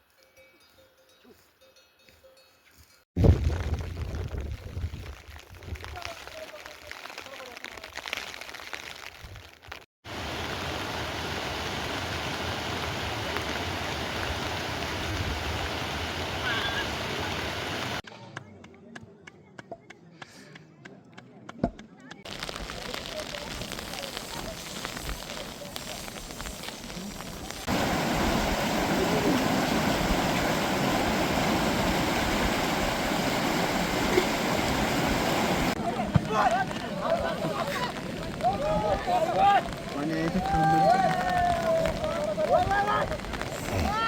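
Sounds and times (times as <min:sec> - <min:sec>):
water rushing with low rumble: 0:10.1 - 0:18.0, 0:22.3 - 0:44.0.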